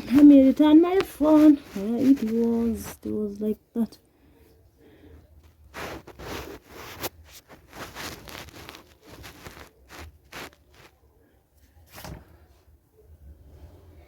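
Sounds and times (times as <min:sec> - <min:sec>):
bedding fabric rustling: 0:00.0 - 0:03.3, 0:05.4 - 0:11.0.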